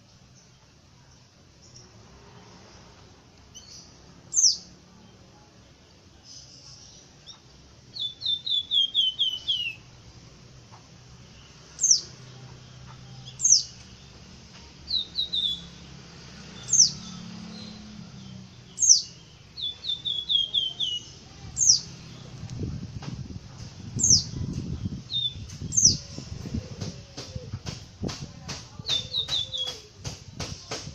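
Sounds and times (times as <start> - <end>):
songbird singing: 0.0 - 30.9
low rumbling: 14.9 - 29.3.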